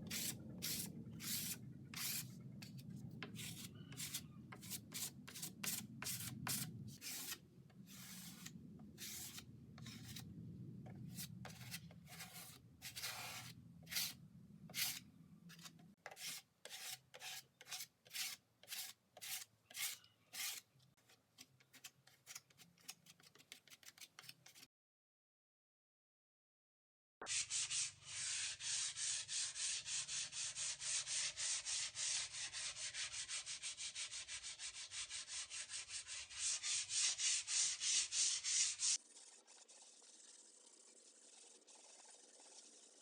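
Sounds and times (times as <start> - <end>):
sandpaper rubbing on wood: 0.1 - 2.3, 3.4 - 7.4, 11.2 - 14.2, 27.3 - 39.0.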